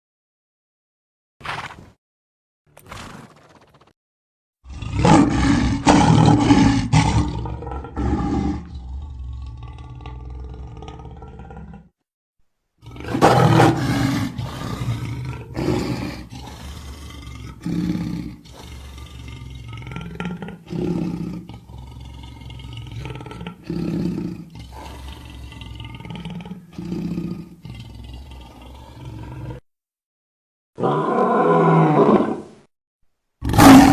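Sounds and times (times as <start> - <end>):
cartoon creature roaring: 4.7 - 11.9, 12.8 - 29.6, 30.8 - 32.6, 33.4 - 33.9
low growling: 4.7 - 12.0, 12.8 - 29.6.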